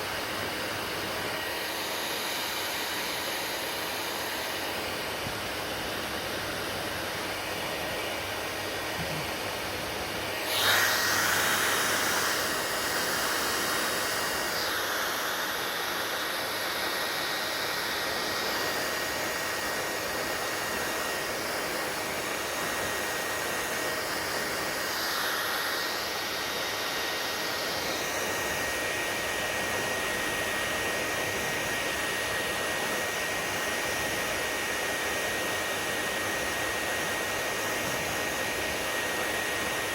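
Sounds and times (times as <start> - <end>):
hair dryer running: 0.0 - 39.9
thin steady whine: 6.2 - 34.0.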